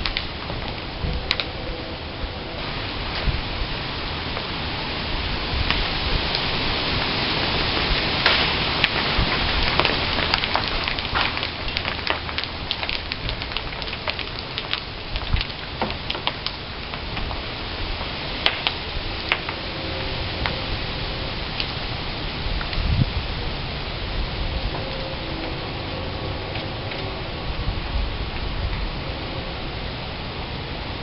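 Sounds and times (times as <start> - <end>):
steady rushing hiss: 0.0 - 31.0
acorns falling with sharp clicks: 8.2 - 17.4, 18.4 - 19.6.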